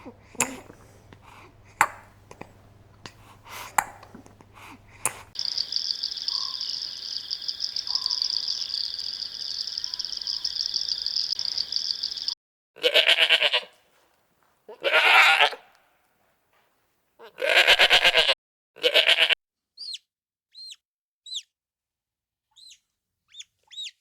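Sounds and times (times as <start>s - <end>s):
sheep bleating: 12.8s - 13.8s, 14.7s - 15.8s, 17.2s - 19.4s.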